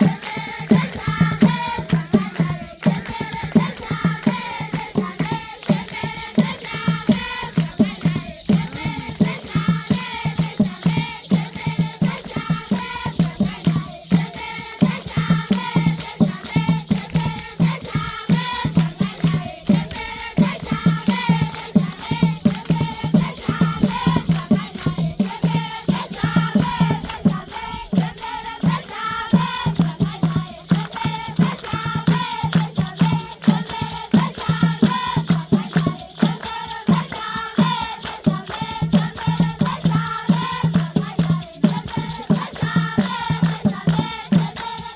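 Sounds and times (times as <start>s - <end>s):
children singing in chorus: 0.0s - 44.9s
rattles shaken: 0.0s - 44.9s.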